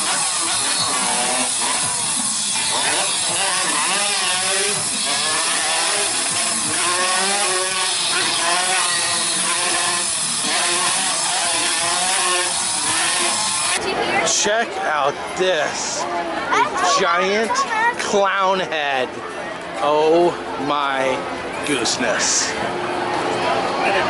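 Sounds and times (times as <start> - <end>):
motorcycle engines revving: 0.0 - 14.4.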